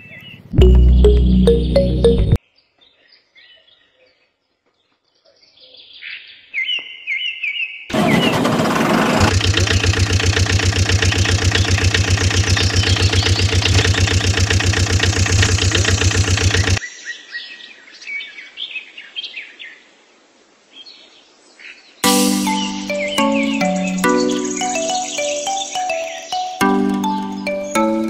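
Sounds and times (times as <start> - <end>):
truck engine chugging: 7.9 - 16.8
birds chirping faintly: 9.3 - 19.8, 20.7 - 28.0.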